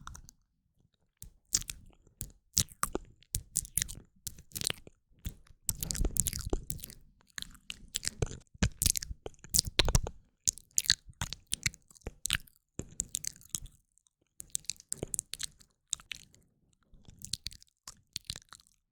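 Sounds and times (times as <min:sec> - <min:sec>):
tongue and lip clicks: 0:00.0 - 0:00.3, 0:01.2 - 0:13.8, 0:14.4 - 0:16.2.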